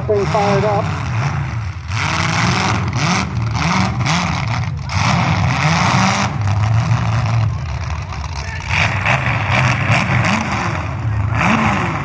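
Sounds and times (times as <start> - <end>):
exhaust bursts: 0.0 - 1.0
car engines revving: 0.0 - 12.0.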